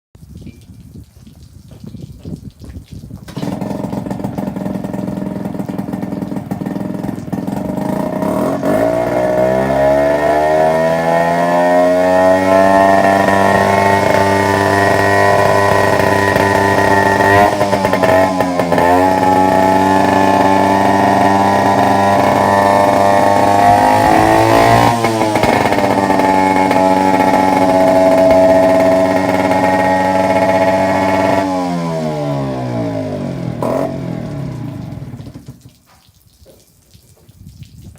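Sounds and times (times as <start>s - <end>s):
outboard motor running: 3.3s - 35.7s.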